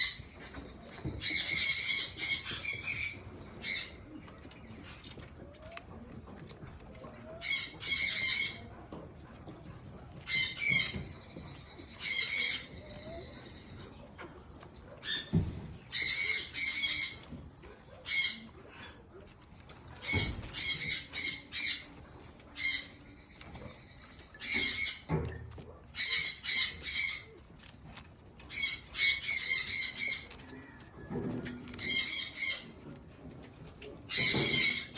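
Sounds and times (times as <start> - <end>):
bird chirping: 0.0 - 5.3.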